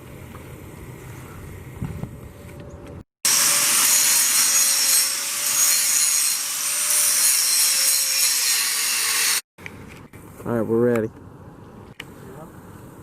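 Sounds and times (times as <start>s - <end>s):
power tool rasping: 3.3s - 9.4s.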